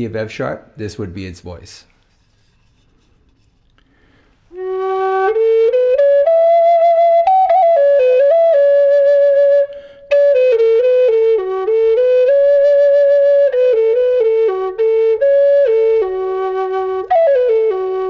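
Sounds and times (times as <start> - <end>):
flute playing slow melody: 4.5 - 18.0.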